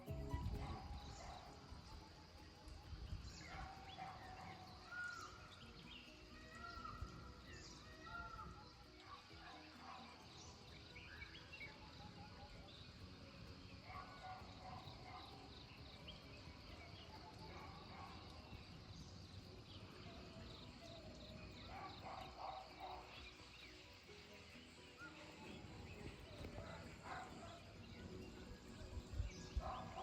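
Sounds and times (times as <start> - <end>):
bird chirps and calls: 3.2 - 12.6.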